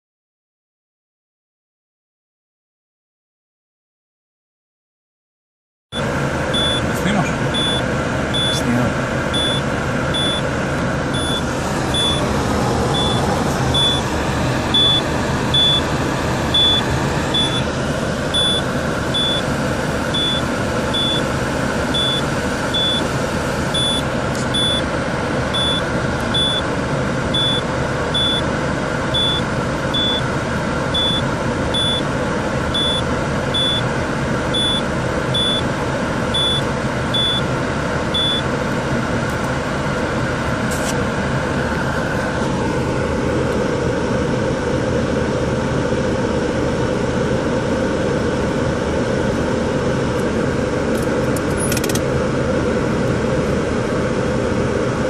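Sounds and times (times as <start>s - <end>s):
diesel engine and road noise: 5.9s - 55.0s
dashboard warning chime beeping: 6.0s - 10.5s, 11.1s - 17.7s, 18.3s - 19.5s, 20.1s - 21.3s, 21.9s - 24.9s, 25.5s - 26.7s, 27.4s - 28.5s, 29.1s - 30.3s, 30.9s - 32.1s, 32.7s - 33.9s, 34.5s - 35.7s, 36.3s - 37.5s, 38.1s - 38.5s.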